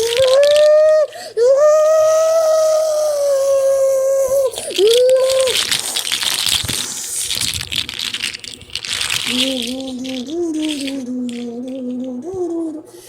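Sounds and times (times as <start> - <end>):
rattling crackling clicks: 4.4 - 12.5.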